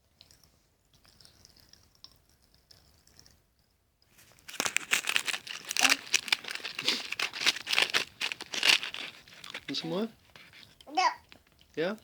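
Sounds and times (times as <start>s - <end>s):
packet crinkling: 4.2s - 11.8s
popping candy crackling: 4.2s - 12.0s.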